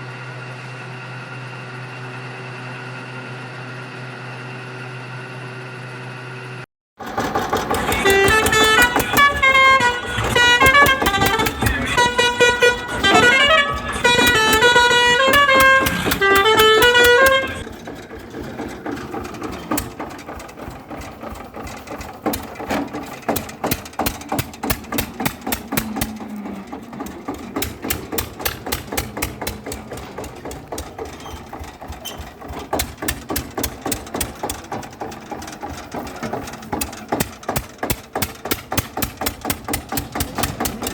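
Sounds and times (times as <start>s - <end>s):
small engine running: 0.0s - 40.9s
musical vehicle horn tune: 7.5s - 18.0s, 24.0s - 32.5s.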